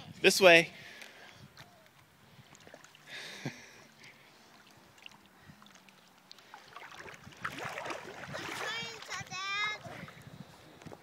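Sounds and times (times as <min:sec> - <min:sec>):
river water lapping and splashing: 0:01.0 - 0:11.0
short water splash: 0:05.0 - 0:09.2.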